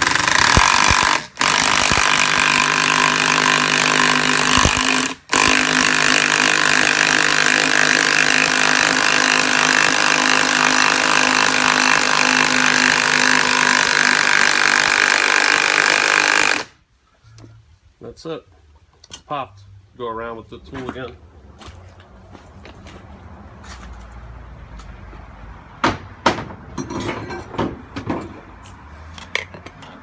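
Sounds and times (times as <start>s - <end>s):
power tool running: 0.0s - 16.8s.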